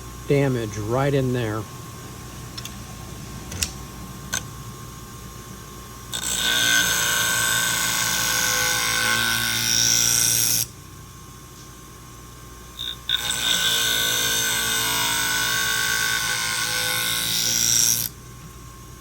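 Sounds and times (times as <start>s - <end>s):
motor hum: 0.0s - 9.7s.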